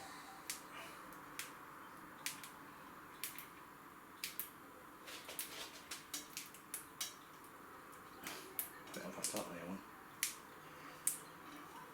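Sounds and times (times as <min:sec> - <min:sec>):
faint steady hiss: 0:00.0 - 0:11.9.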